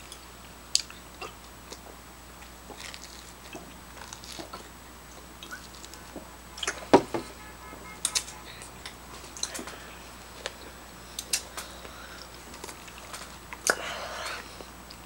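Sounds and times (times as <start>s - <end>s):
people chewing: 0.0s - 7.4s, 8.0s - 15.0s
small clicks and crackles: 1.8s - 4.7s.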